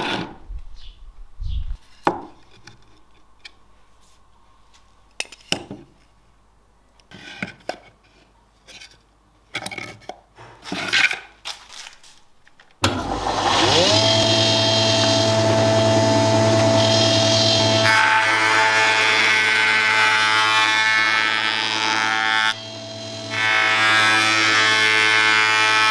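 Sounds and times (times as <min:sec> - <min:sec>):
power tool motor whining: 0:12.8 - 0:25.9.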